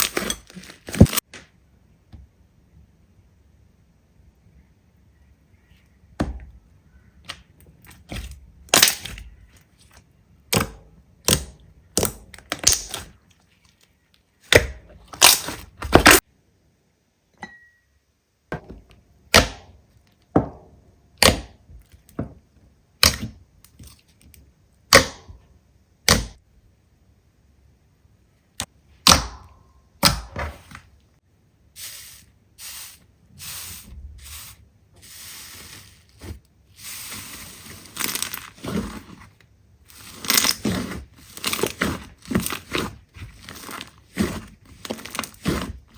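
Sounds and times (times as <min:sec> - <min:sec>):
slime popping and crackling: 0:08.7 - 0:09.3, 0:11.2 - 0:13.1, 0:40.0 - 0:45.9.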